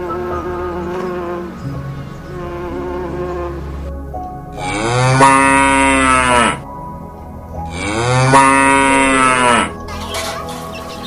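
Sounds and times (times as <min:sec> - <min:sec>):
cow mooing: 0:04.6 - 0:06.6, 0:07.7 - 0:09.8.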